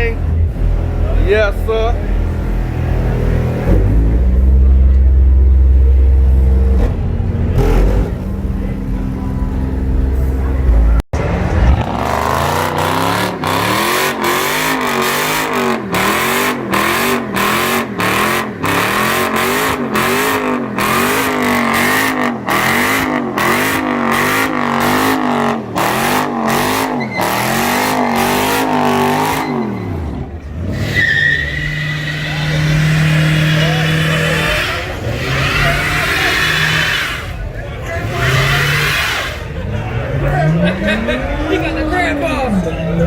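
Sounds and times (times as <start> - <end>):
car engine at high revs: 0.0 - 43.0
tyres squealing: 26.6 - 39.7.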